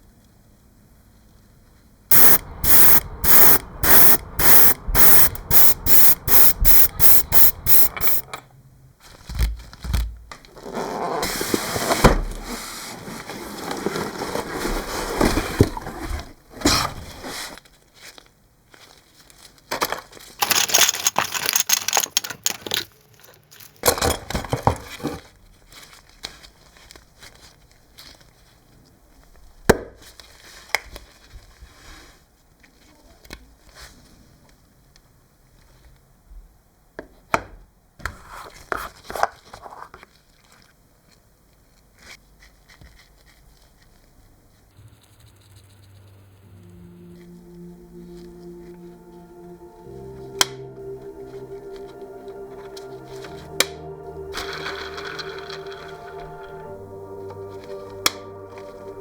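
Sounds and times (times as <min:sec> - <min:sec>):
hissing spray bursts: 0:02.1 - 0:08.2.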